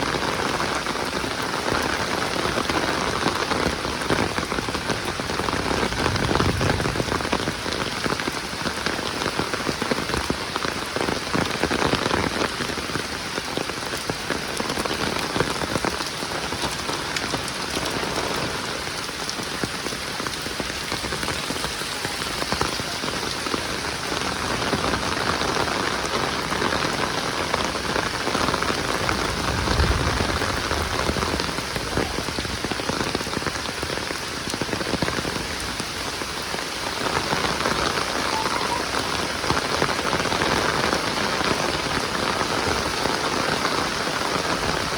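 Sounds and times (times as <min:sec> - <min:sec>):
heavy rain falling: 0:00.0 - 0:44.9
low rumble: 0:29.0 - 0:32.0.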